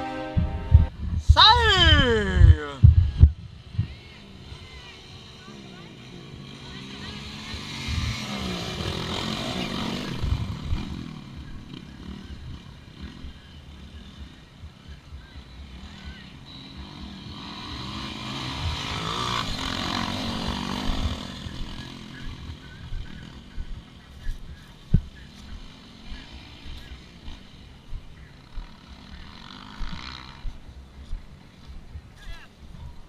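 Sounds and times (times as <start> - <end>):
motocross bikes racing past: 0.0 - 33.0
wind buffeting microphone: 0.3 - 4.0.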